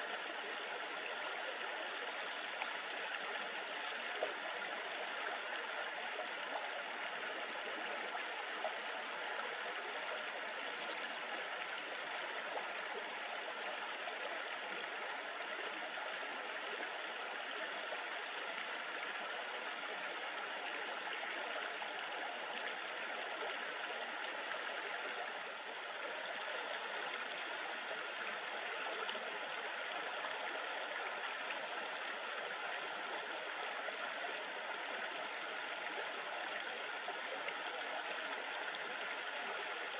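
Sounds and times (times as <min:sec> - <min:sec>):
river water babbling: 0:00.0 - 0:39.9
small birds chirping: 0:10.7 - 0:11.2.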